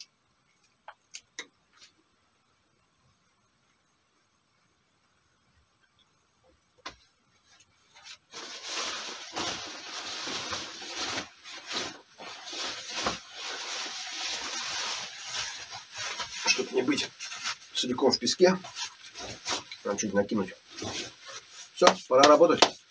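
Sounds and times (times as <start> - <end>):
rustling and scraping: 6.8 - 22.8.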